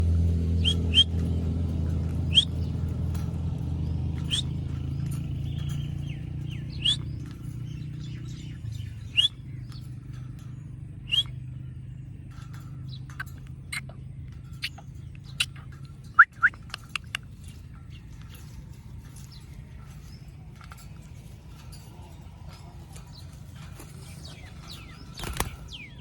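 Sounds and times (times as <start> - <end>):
low steady rumble: 0.0 - 26.0
parakeet chirps: 0.6 - 1.2, 4.2 - 4.6.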